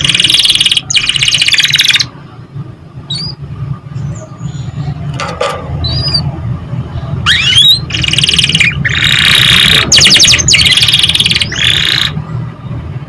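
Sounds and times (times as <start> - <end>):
canary singing: 0.0 - 2.1, 3.0 - 5.1, 5.8 - 6.3, 7.2 - 12.2
steady low hum: 0.0 - 13.0.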